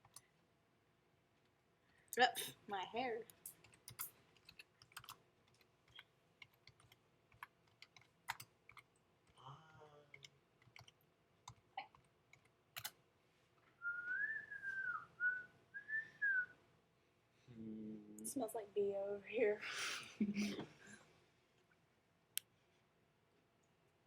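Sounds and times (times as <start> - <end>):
keyboard keystrokes: 3.4 - 8.9
person whistling a tune: 13.8 - 16.5.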